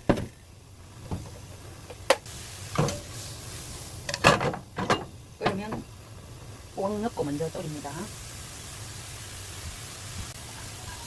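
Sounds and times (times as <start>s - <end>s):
cookware knocking and clinking: 2.8s - 3.0s, 4.1s - 5.9s.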